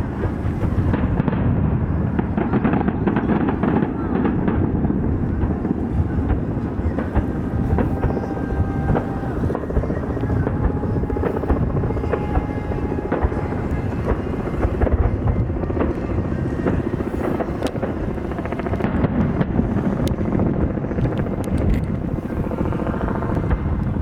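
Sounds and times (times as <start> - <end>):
helicopter rotor chopping: 2.2 - 24.0
sharp cracks: 2.4 - 24.0.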